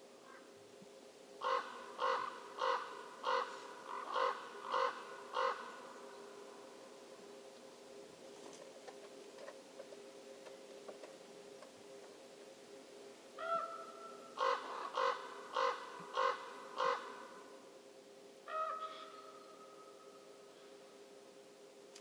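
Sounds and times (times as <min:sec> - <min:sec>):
crow cawing: 0:00.2 - 0:00.5, 0:01.4 - 0:05.8, 0:13.4 - 0:17.5, 0:18.5 - 0:20.2.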